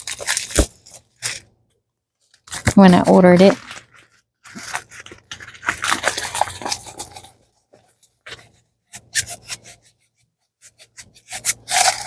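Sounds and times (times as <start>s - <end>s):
packaging crackling and tearing: 0.0s - 1.5s, 2.3s - 7.4s.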